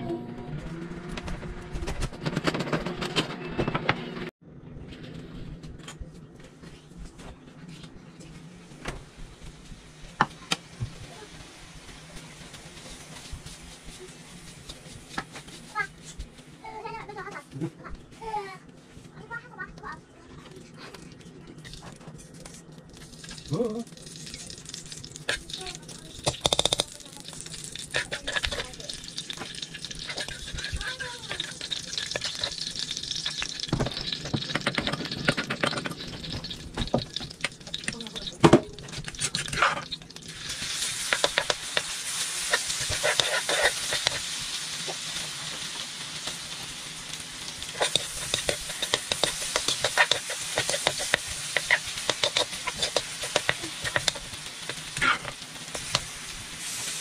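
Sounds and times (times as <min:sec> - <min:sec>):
food sizzling in hot oil: 0:22.9 - 0:57.0
metal spoon scraping a pan: 0:24.2 - 0:56.9.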